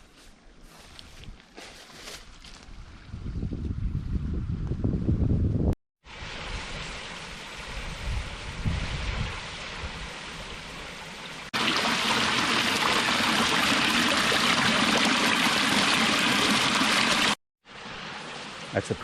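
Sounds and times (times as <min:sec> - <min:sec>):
waterfall rushing: 0:11.6 - 0:17.4.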